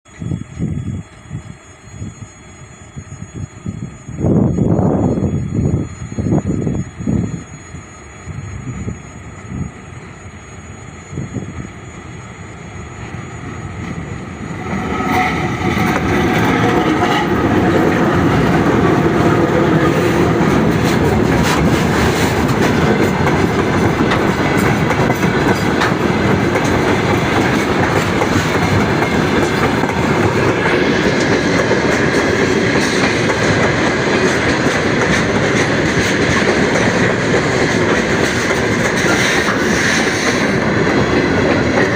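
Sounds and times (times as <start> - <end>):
freight train wheels clattering: 12.2 - 41.9.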